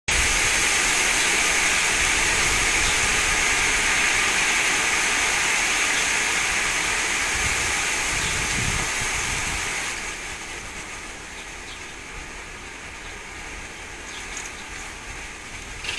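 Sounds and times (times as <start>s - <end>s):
wind rushing through trees: 0.1s - 15.9s
wind buffeting microphone: 7.1s - 10.9s.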